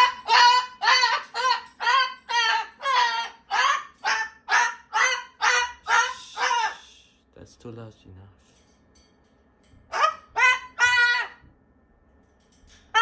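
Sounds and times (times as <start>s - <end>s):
cockatoo screeching: 0.0s - 7.0s, 9.9s - 11.4s.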